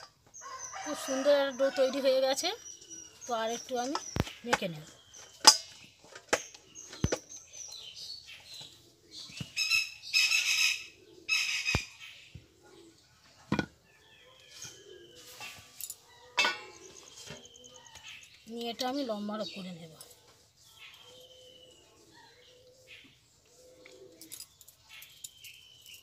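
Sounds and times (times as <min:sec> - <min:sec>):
birds chirping and calling: 0:00.0 - 0:26.0.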